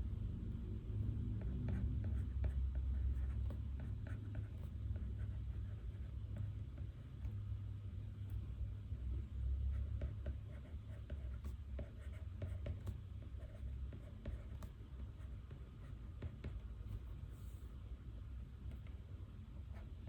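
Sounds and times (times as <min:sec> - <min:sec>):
low steady hum: 0:00.0 - 0:20.0
pen scratching on paper: 0:01.4 - 0:07.3, 0:09.7 - 0:17.6.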